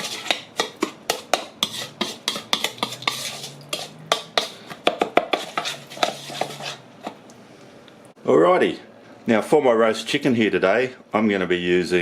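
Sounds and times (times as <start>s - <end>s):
spoon stirring paste in a bowl: 0.0s - 7.2s.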